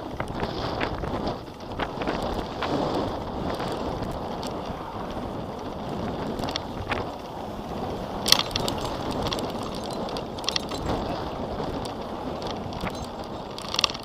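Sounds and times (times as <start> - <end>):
wind and road noise: 0.0 - 14.0
clicks and rattles: 8.2 - 14.0.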